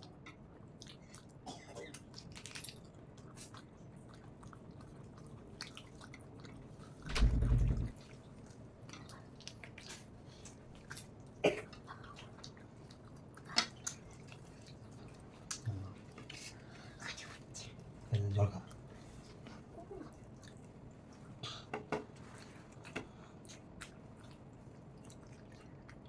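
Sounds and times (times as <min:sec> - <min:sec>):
low rumbling bump: 0:07.1 - 0:08.0
person chewing food: 0:22.3 - 0:26.0.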